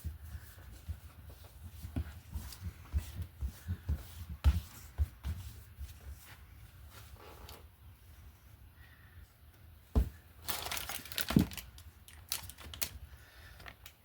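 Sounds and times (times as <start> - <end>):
objects thumping on a table: 9.9 - 10.2.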